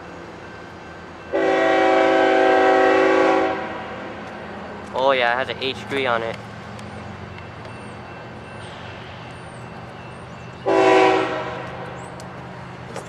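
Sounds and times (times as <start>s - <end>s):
diesel locomotive rumbling: 0.0s - 13.0s
locomotive air horn blast: 1.3s - 4.0s, 10.6s - 11.8s.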